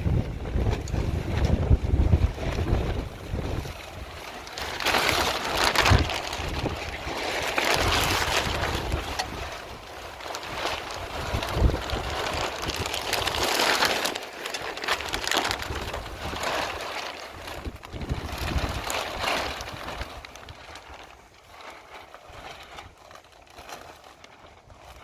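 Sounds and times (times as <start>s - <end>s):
wind gusting over microphone: 0.0s - 14.1s, 14.9s - 20.6s.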